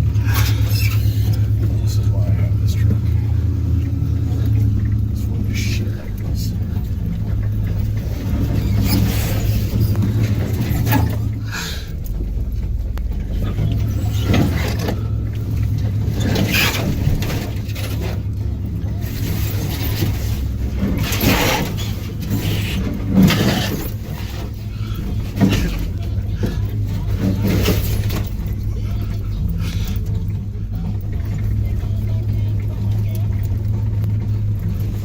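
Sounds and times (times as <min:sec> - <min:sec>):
knocks and scrapes: 0:00.0 - 0:35.0
truck engine running at low speed: 0:00.0 - 0:35.0.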